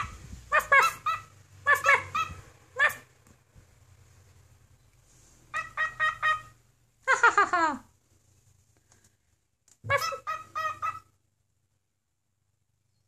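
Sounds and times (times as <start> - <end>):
animal calling: 0.0 - 3.1, 5.5 - 6.6, 9.8 - 11.2.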